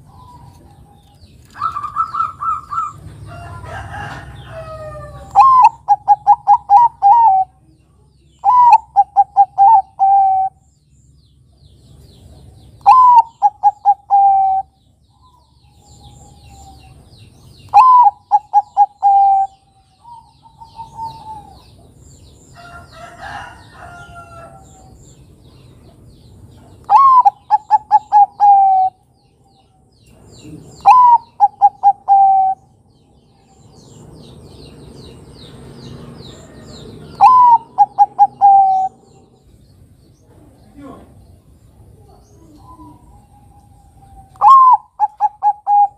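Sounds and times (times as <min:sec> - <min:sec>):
dove cooing: 0:00.0 - 0:07.6, 0:08.4 - 0:10.6, 0:12.8 - 0:14.8, 0:17.7 - 0:21.8, 0:26.8 - 0:29.0, 0:30.4 - 0:32.7, 0:36.5 - 0:39.4, 0:41.9 - 0:45.9
faint bird calls: 0:12.7 - 0:21.8, 0:26.5 - 0:34.0, 0:36.2 - 0:39.6, 0:40.2 - 0:45.9.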